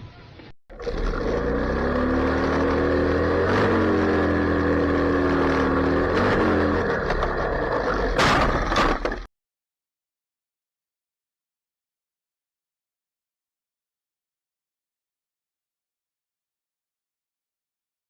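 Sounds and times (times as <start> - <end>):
vehicle engine running under load: 0.8 - 9.2.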